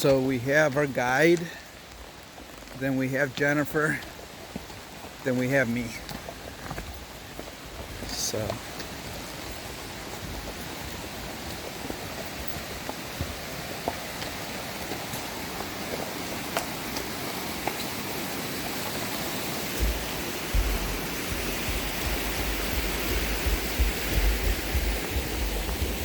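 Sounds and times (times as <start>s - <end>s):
steady rushing noise: 17.6s - 26.0s.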